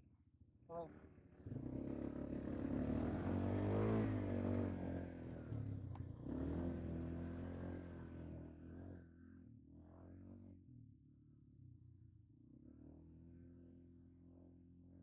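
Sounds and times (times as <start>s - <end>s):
quad bike engine revving: 1.5s - 5.7s.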